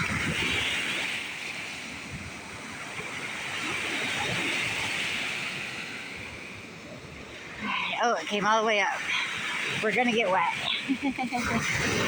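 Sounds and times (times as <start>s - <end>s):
waves breaking on a beach: 0.0s - 12.0s
wind rumbling on microphone: 0.0s - 12.0s.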